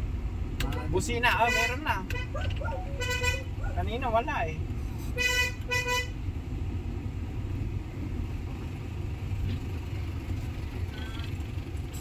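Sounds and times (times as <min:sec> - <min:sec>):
diesel engine running: 0:00.0 - 0:12.0
car horn beeps: 0:00.8 - 0:03.6, 0:05.1 - 0:06.2.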